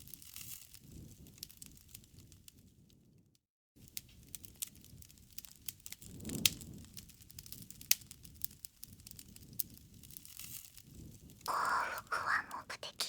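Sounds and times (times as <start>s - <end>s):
campfire crackling and popping: 0.0s - 2.8s, 3.8s - 13.0s
low rumble of burning: 0.0s - 12.4s.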